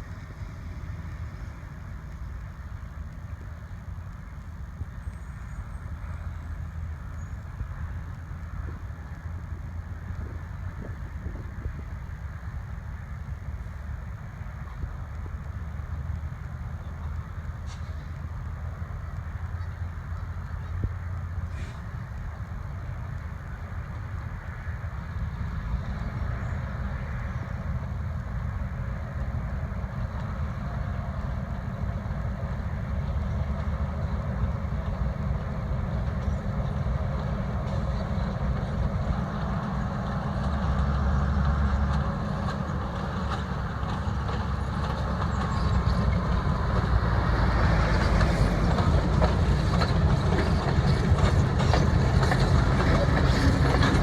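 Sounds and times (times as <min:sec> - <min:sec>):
train rumbling: 0:00.0 - 0:54.0
wheels clattering on rails: 0:00.0 - 0:54.0.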